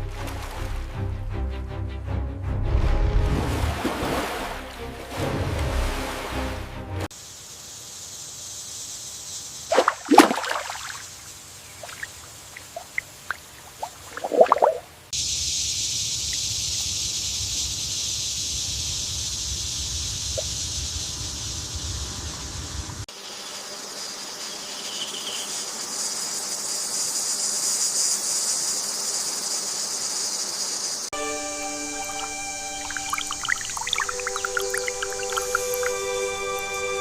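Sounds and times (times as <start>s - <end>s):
insects buzzing: 7.1s - 37.0s
held musical tones: 31.2s - 37.0s.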